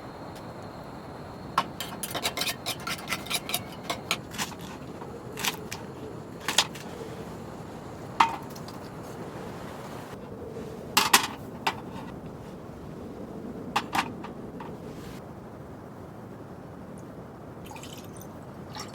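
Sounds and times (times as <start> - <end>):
steady background hiss: 0.0 - 18.9
cookware and utensils clinking: 1.6 - 4.8.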